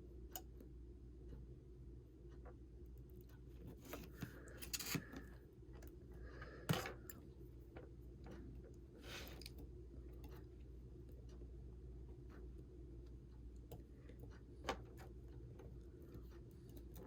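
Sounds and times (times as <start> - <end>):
steady low hum: 0.0 - 17.0
small tool clicks and scrapes: 3.7 - 5.3.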